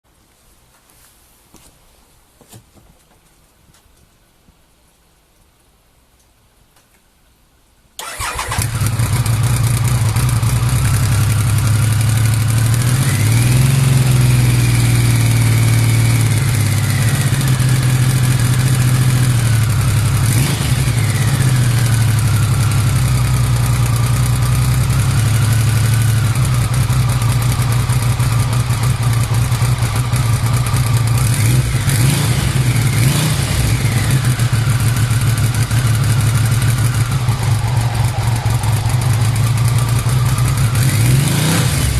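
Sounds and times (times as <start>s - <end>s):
van engine idling and revving: 8.8s - 41.9s.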